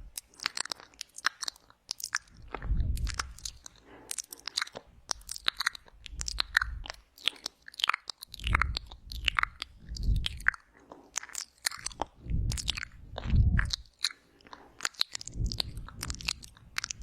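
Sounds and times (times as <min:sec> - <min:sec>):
wet mouth clicks and smacks: 0:00.0 - 0:17.0
low muffled swells: 0:02.5 - 0:03.4, 0:12.2 - 0:13.8.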